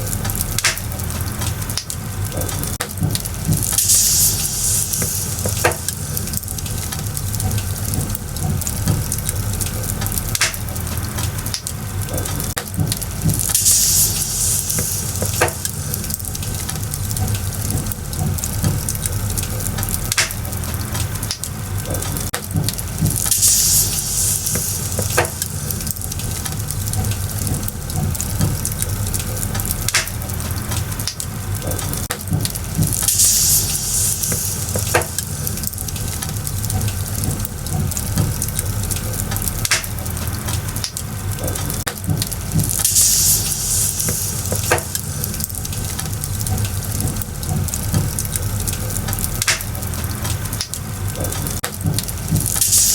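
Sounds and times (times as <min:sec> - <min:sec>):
firewood crackling and popping: 0:00.0 - 0:52.9
low rumble of flames: 0:00.0 - 0:52.9
short high hiss: 0:03.8 - 0:06.3, 0:13.5 - 0:16.0, 0:23.3 - 0:25.8, 0:33.1 - 0:35.3, 0:42.8 - 0:45.4, 0:52.6 - 0:52.9.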